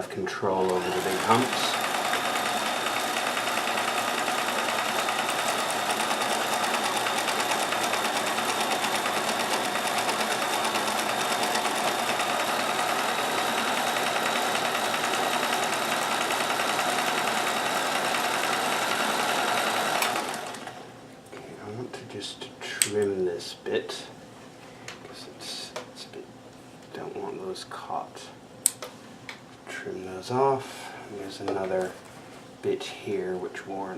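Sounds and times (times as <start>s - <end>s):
sewing machine stitching: 0.5s - 20.8s.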